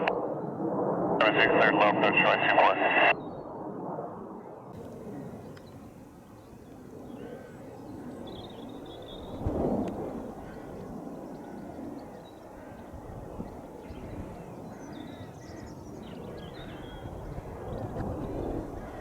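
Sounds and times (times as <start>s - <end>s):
birds chirping: 4.8s - 9.4s, 10.3s - 19.0s.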